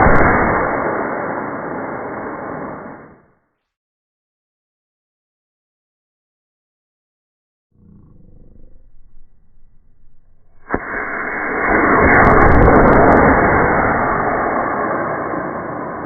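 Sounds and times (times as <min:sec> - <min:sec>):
sharp crack: 0:00.0 - 0:03.1, 0:09.8 - 0:16.0
rocket roar: 0:00.0 - 0:03.2, 0:08.5 - 0:16.0.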